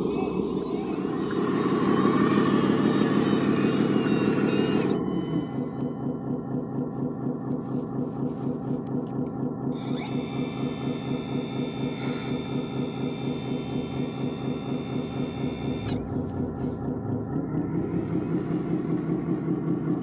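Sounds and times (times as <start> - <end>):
rc machine engine pulsing: 0.0 - 20.0
high electric whine: 9.8 - 16.2.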